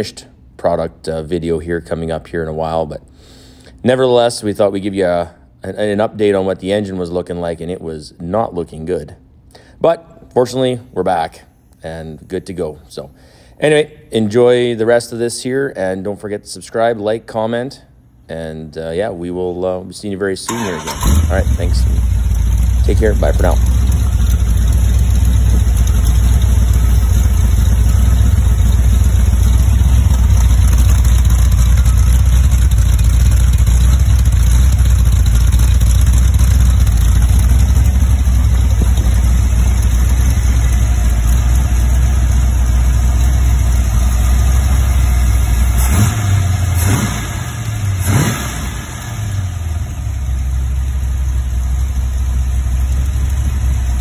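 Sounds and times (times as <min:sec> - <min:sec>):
engine revving: 0:20.5 - 0:41.5, 0:43.8 - 0:50.3
engine idling: 0:20.5 - 0:54.0.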